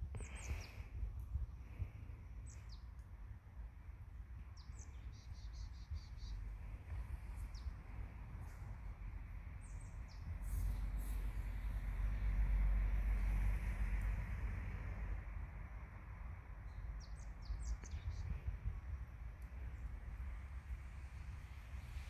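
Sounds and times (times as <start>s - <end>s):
steady low rumble: 0.0s - 22.0s
small birds chirping: 0.1s - 1.0s, 1.6s - 3.1s, 4.4s - 8.6s, 9.5s - 11.3s, 16.6s - 20.0s.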